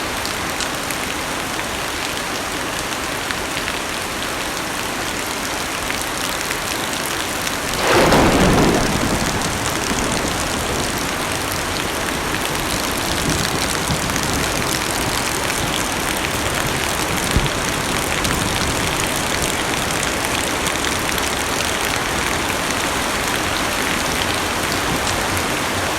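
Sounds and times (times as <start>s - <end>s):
heavy rain on car roof: 2.8s - 25.9s
thunder rumble: 7.5s - 20.4s.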